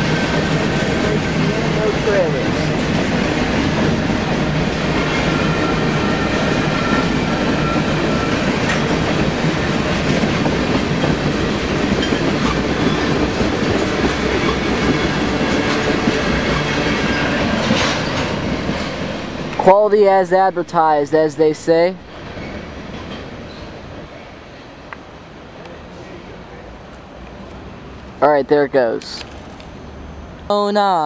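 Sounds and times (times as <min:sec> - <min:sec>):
train wheels rumbling on rails: 0:00.0 - 0:28.2
faint thin squeal: 0:05.2 - 0:08.8, 0:23.4 - 0:23.8.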